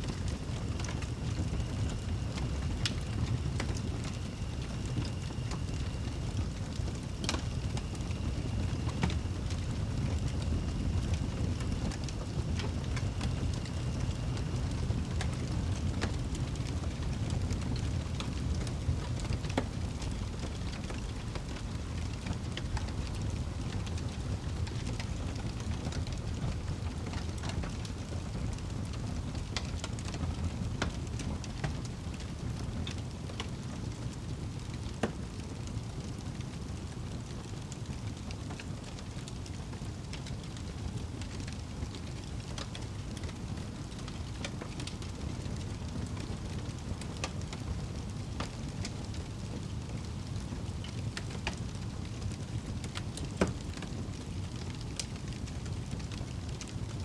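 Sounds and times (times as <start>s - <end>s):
wood fire crackling: 0.0s - 57.0s
sharp pops of fire: 0.1s - 16.8s.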